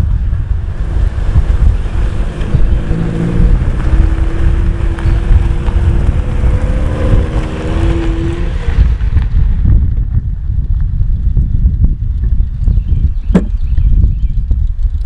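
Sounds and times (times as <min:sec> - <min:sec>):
pickup truck engine running: 0:00.0 - 0:09.6
wind buffeting microphone: 0:00.0 - 0:15.0.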